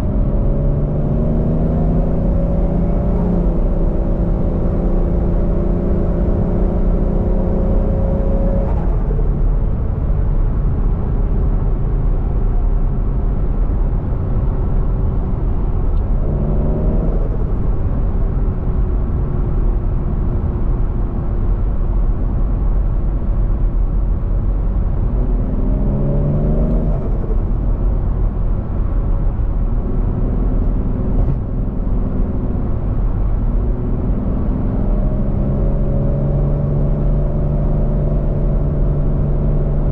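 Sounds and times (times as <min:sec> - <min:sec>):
car engine accelerating: 0:00.0 - 0:10.6, 0:15.1 - 0:20.0, 0:24.3 - 0:39.9.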